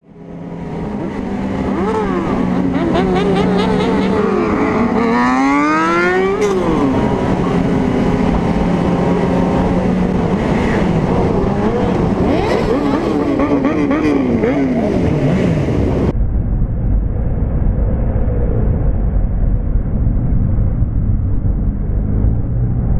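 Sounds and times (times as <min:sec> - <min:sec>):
motorcycle engines revving: 0:00.1 - 0:16.1.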